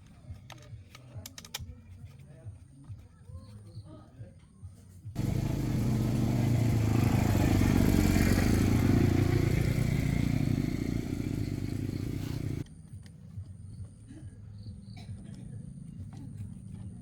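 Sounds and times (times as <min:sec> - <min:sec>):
vehicle engine running: 0:05.2 - 0:12.6.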